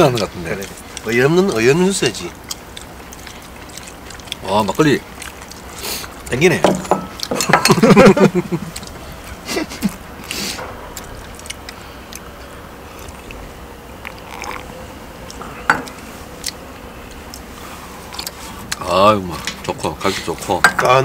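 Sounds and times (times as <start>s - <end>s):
people chewing: 0.0s - 21.0s
tableware clicks: 6.6s - 7.8s.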